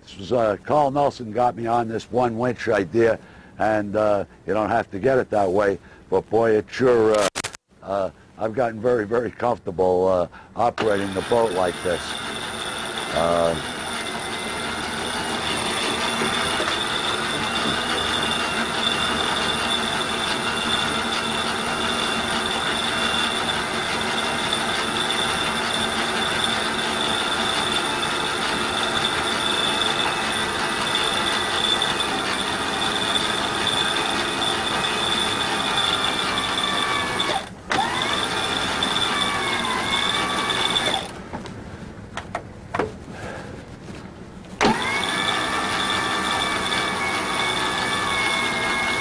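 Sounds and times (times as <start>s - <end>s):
electric winch whining: 10.8s - 41.3s, 44.6s - 49.0s.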